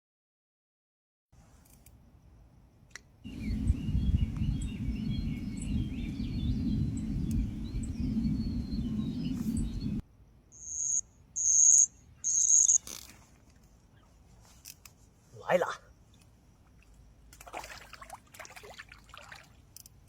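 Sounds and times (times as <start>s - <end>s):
low rumble: 3.3s - 10.0s
high-pitched insect trills: 3.3s - 18.1s
wavering chirping calls: 10.6s - 12.9s.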